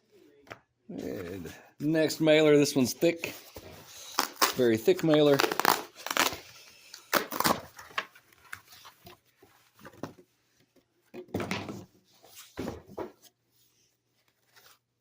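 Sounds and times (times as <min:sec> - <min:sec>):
cardboard tearing and rustling: 0:04.0 - 0:06.5, 0:07.1 - 0:09.0.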